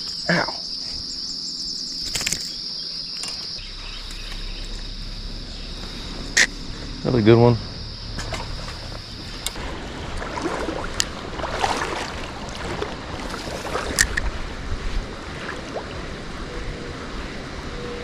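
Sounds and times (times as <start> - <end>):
creek water splashing: 3.6 - 16.4
sharp splashes or clicks: 8.2 - 14.3.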